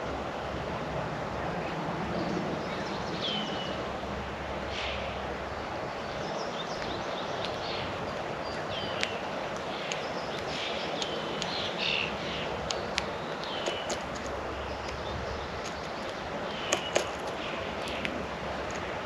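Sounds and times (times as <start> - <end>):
outdoor background hiss: 0.0 - 19.0
songbirds chirping: 0.3 - 19.0
sharp click: 16.7 - 18.1.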